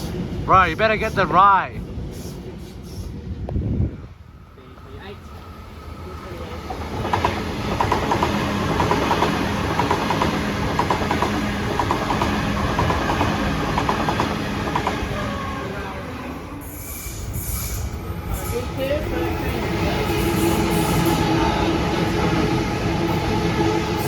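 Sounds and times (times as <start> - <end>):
low train hum: 0.0 - 24.0
train wheels clattering over rail joints: 6.9 - 15.0.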